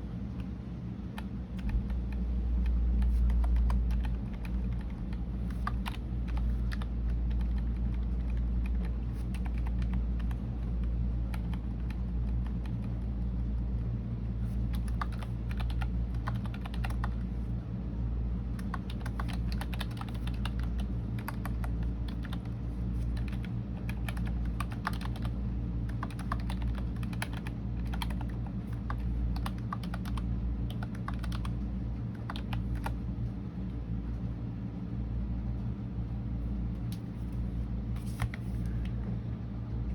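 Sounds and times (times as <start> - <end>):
steady low hum: 0.0 - 39.9
typing on computer keyboard: 1.2 - 2.2, 3.0 - 13.0, 14.6 - 17.3, 18.6 - 33.0.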